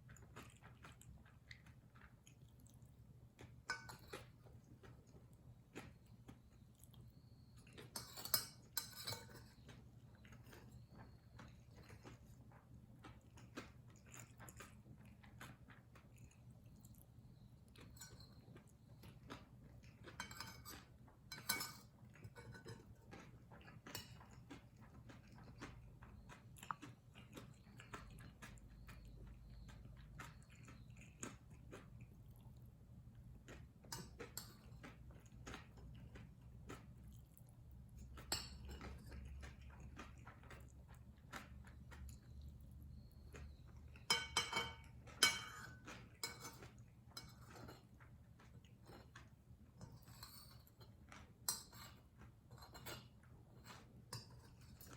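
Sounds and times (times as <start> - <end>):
quiet chewing: 0.0 - 54.9
cutlery clinking against a dish: 3.6 - 4.4, 7.6 - 10.6, 17.8 - 25.7, 33.8 - 36.8, 38.2 - 40.6, 42.9 - 48.0, 48.8 - 54.9.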